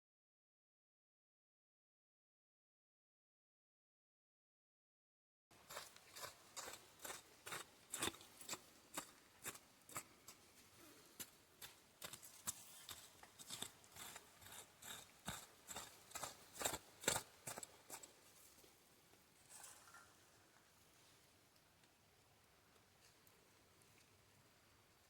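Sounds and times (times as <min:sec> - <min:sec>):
hand tool chopping wet soil: 0:05.6 - 0:10.1, 0:11.6 - 0:18.1.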